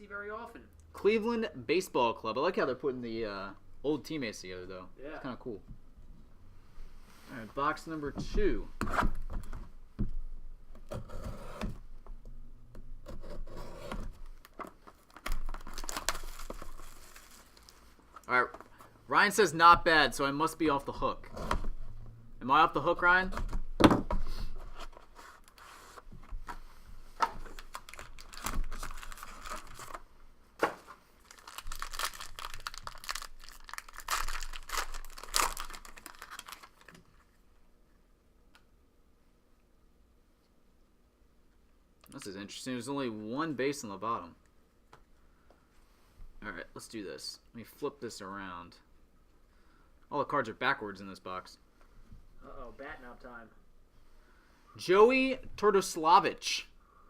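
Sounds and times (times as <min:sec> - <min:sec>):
cardboard box scraping and rubbing: 0:13.2 - 0:14.1
packaging tearing and crinkling: 0:14.4 - 0:17.8, 0:27.4 - 0:30.0, 0:31.2 - 0:37.2.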